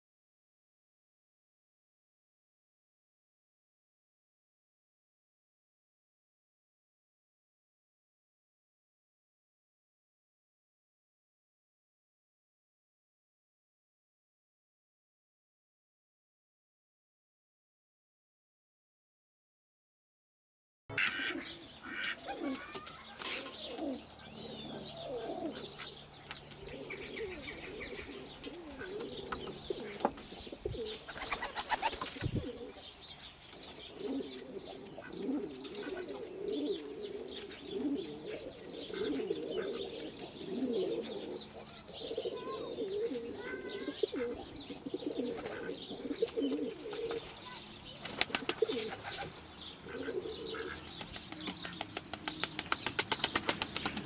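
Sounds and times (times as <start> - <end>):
low wavering bird calls: 21.0 - 54.0.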